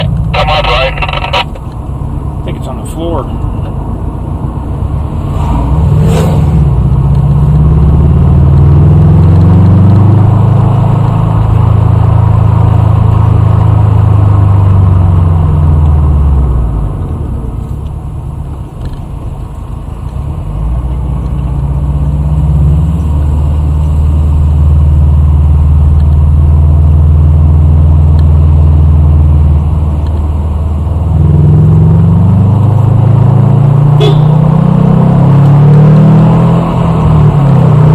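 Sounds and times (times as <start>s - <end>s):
vehicle engine revving under load: 4.8s - 11.2s, 31.0s - 37.9s.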